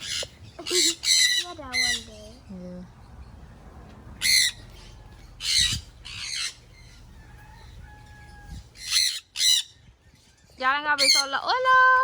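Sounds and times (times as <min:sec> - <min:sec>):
parrots squawking: 0:00.0 - 0:02.4, 0:04.2 - 0:09.8, 0:11.0 - 0:11.4.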